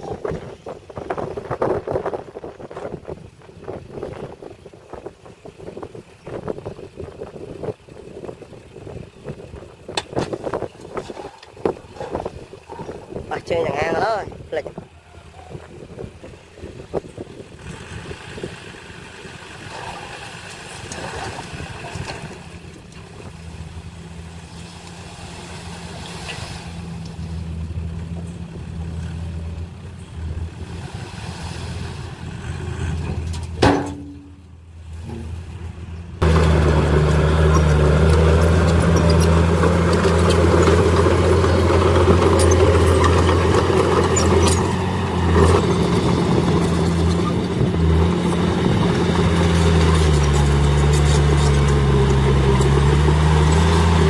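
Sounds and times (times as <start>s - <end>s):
heavy machinery diesel engine: 16.0s - 54.0s.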